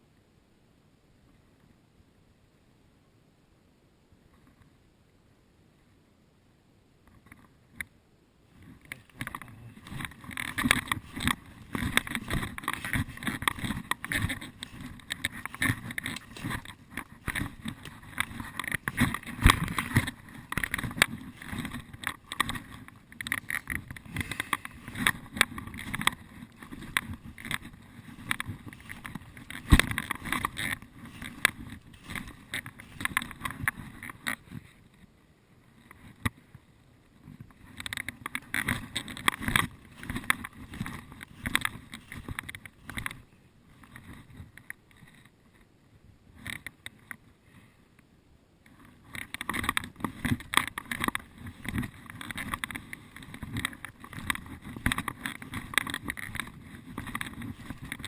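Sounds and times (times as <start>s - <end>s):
footsteps crunching dry leaves: 9.0s - 33.7s.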